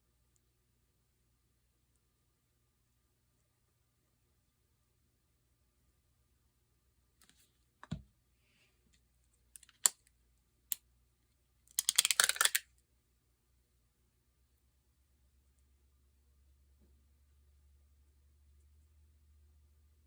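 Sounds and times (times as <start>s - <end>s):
sharp clicks: 9.6s - 10.0s, 11.7s - 12.6s.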